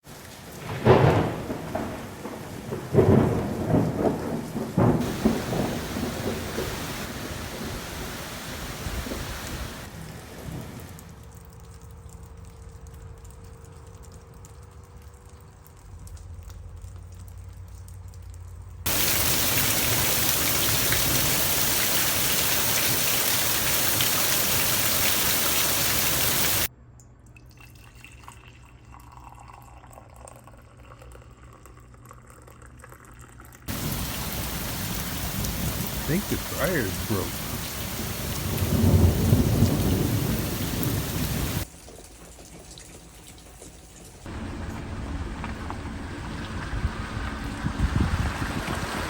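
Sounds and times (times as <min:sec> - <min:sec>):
rain falling: 0:00.0 - 0:26.7, 0:33.7 - 0:49.0.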